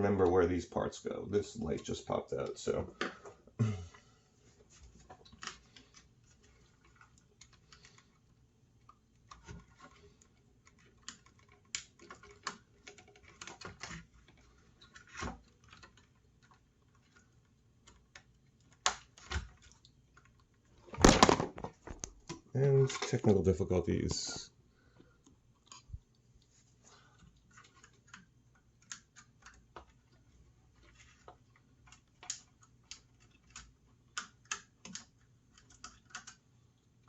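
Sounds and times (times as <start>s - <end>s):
clicks and taps of small parts: 30.8s - 36.4s.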